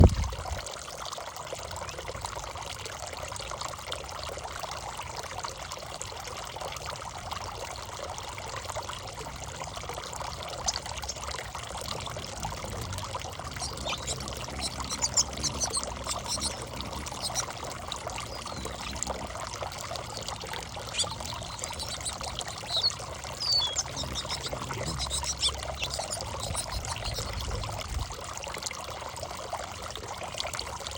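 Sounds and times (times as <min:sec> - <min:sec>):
fountain water splashing: 0:00.0 - 0:30.9
small birds chirping: 0:10.4 - 0:11.3, 0:12.0 - 0:27.8.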